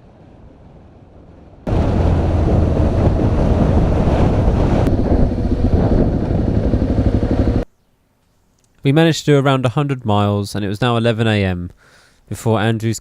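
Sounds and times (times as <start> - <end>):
wind rushing over microphone: 0.0 - 7.6
motorcycle engine drone: 1.1 - 7.7.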